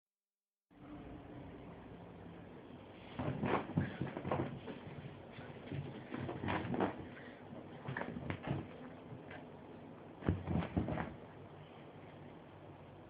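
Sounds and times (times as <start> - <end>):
dog thumping and scuffing on bed: 3.1 - 9.3, 10.2 - 11.3.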